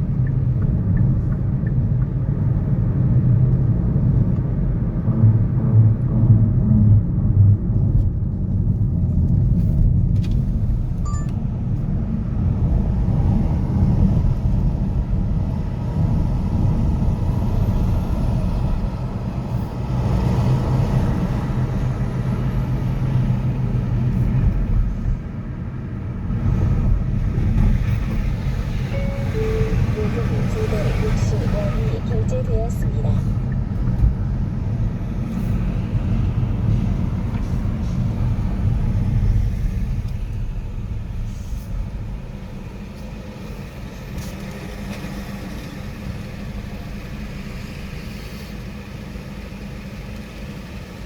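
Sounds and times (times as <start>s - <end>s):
traffic rumble: 0.0s - 51.0s
brief higher tone: 28.9s - 32.2s.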